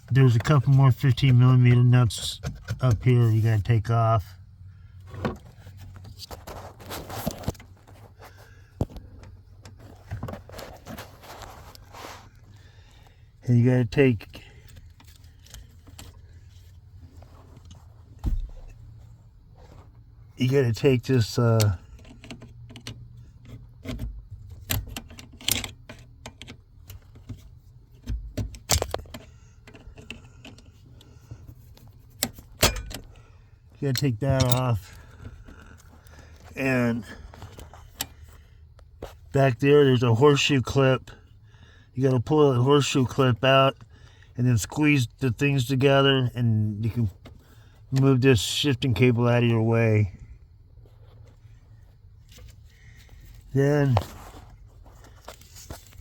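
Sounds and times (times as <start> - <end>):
scraping and rustling: 5.1 - 8.6, 9.6 - 12.6, 50.8 - 56.0
metal clanks: 32.3 - 33.2, 33.9 - 35.0
hand tools clicking on metal: 33.9 - 34.9.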